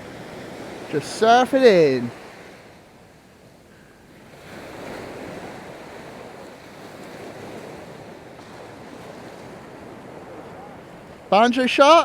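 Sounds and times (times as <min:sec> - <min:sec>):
surf washing on beach: 0:00.0 - 0:12.0
wind on microphone: 0:04.1 - 0:11.4.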